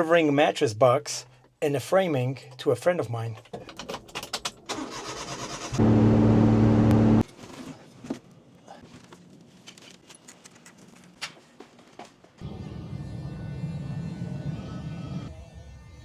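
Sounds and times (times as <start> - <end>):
small clicks and rattles: 3.4 - 4.7, 9.1 - 12.0
truck engine humming: 4.8 - 7.2.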